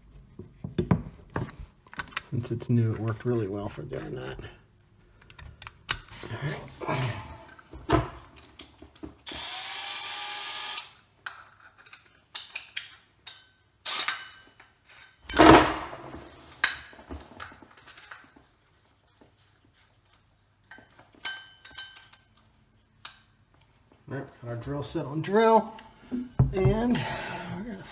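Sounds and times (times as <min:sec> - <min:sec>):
cordless drill spinning up: 0:09.3 - 0:11.0
clicks and knocks of tool handling: 0:11.3 - 0:15.7.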